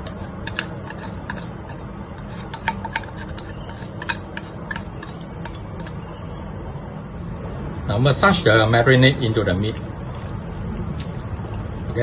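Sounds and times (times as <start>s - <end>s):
utensils clicking on a plate: 0.0s - 6.1s
steady low hum: 0.0s - 12.0s.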